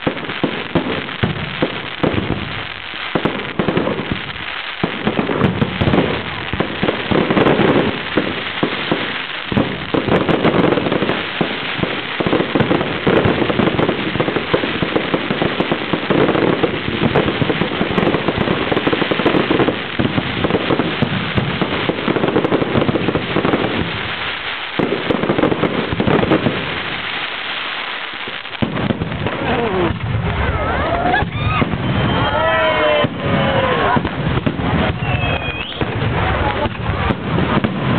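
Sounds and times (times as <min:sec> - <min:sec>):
fireworks bangs and crackling: 0:00.0 - 0:37.9.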